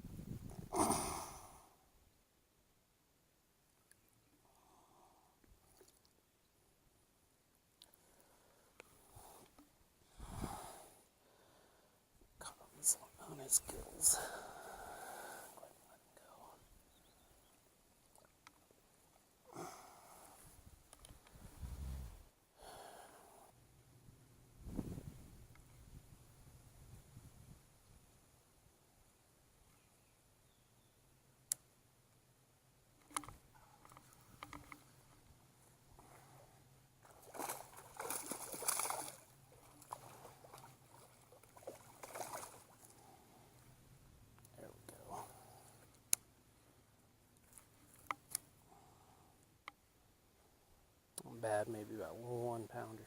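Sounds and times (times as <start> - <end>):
low microphone rumble: 21.4 - 22.3
water splashing and sloshing: 36.0 - 43.2.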